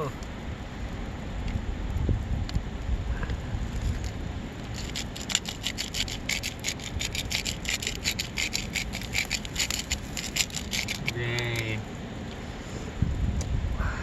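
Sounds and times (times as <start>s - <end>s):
spice mill grinding: 4.6s - 11.8s.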